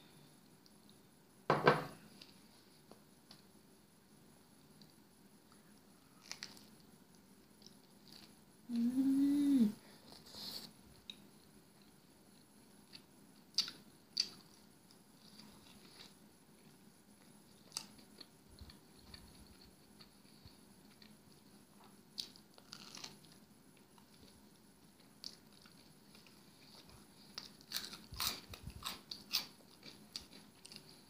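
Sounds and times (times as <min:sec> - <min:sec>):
woman chewing food: 0:04.7 - 0:08.9, 0:10.9 - 0:31.0
person humming mmm: 0:08.7 - 0:09.8.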